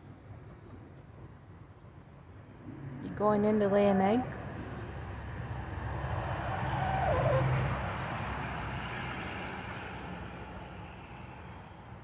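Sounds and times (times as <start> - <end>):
vehicle passing by: 2.6 - 12.0.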